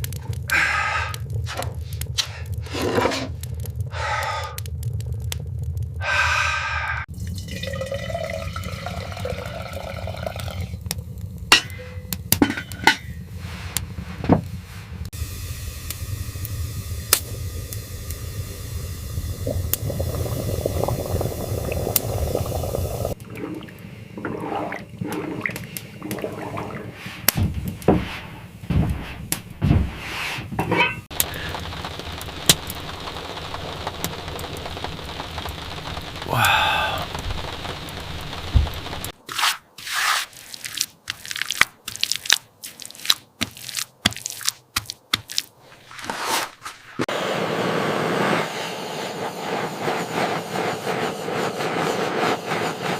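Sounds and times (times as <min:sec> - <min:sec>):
steady hiss: 0:13.2 - 0:23.2, 0:31.1 - 0:39.2, 0:47.1 - 0:52.9.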